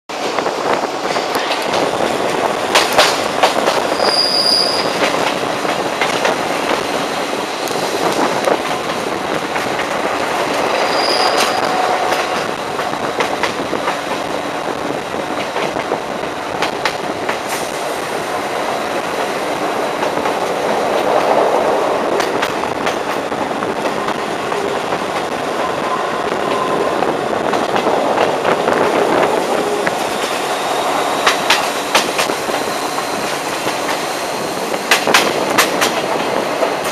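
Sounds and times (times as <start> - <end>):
train wheels rumbling on rails: 0.1 - 36.9
wheel squeals: 3.9 - 5.2, 10.7 - 11.8.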